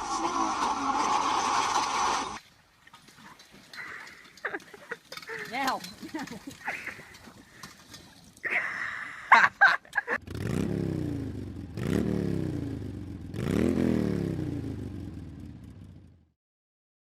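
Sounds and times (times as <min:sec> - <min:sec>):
vehicle engine revving: 0:10.2 - 0:16.2.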